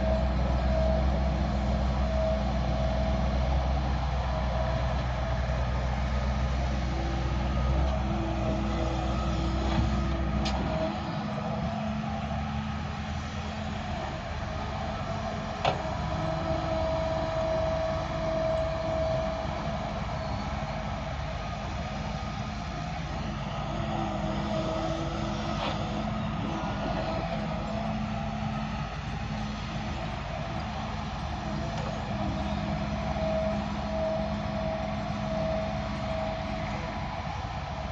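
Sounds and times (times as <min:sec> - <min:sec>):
heavy diesel machinery running: 0:00.0 - 0:37.9
higher machine tone: 0:31.1 - 0:37.4.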